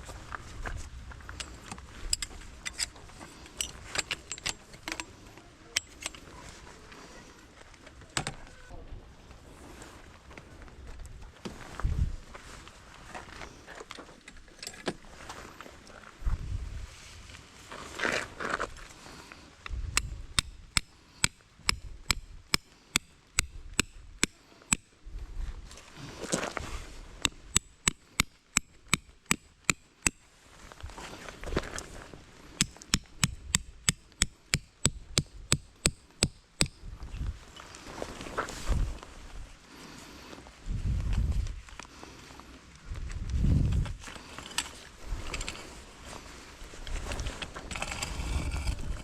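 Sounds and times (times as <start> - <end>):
tent peg being hammered: 19.9 - 24.9, 27.2 - 30.2, 32.6 - 36.8.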